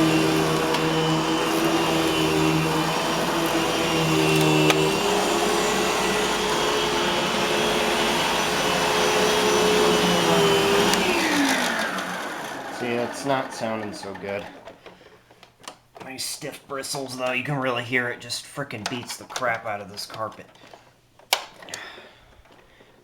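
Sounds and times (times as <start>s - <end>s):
upright vacuum running on carpet: 0.0s - 14.7s.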